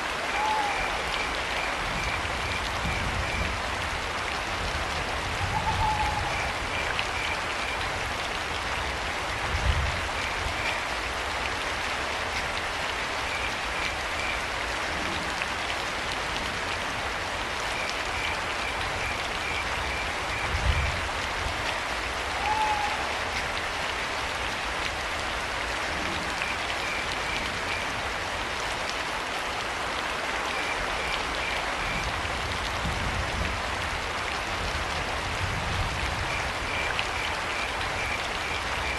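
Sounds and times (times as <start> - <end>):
steady rain falling: 0.0 - 38.9
owl call: 0.3 - 1.1, 5.4 - 6.5, 22.4 - 23.1.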